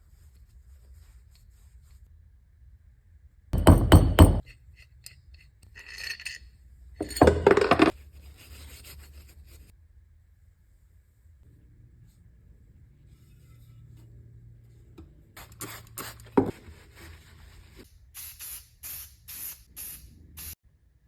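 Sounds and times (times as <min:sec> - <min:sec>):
hard objects clattering: 0:07.0 - 0:08.0.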